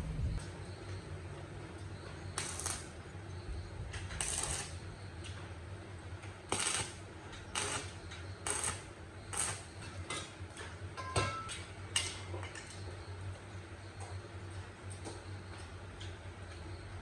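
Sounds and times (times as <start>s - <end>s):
low steady hum: 0.0s - 5.1s.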